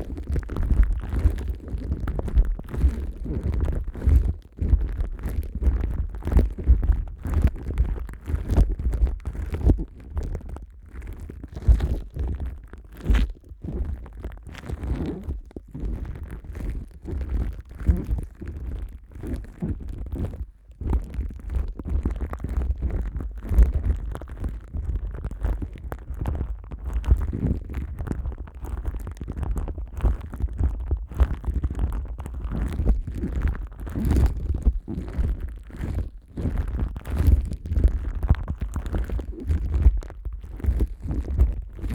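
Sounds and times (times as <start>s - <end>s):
plastic wrap rubbing and crinkling: 21.3s - 41.9s.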